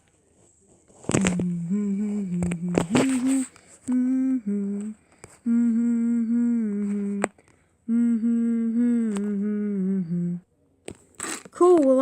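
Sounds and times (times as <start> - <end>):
person humming long notes: 1.2 - 10.4.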